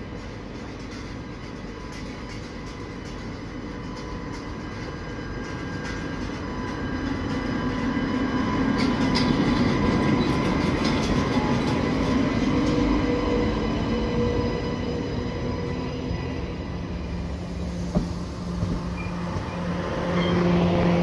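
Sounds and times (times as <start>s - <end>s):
train rumbling past: 0.0s - 21.0s.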